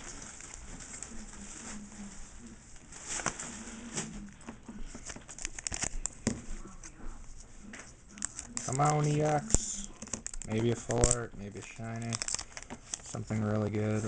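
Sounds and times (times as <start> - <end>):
foil packs crinkling: 2.8 - 4.2, 4.8 - 6.2, 8.2 - 14.0
trading cards clicking: 8.2 - 13.2.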